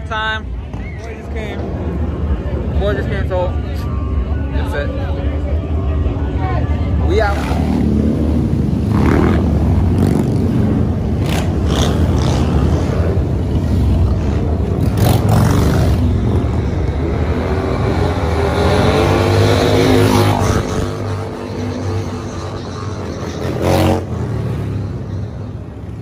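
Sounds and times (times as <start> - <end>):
motorcycle engine revving: 7.3 - 25.0.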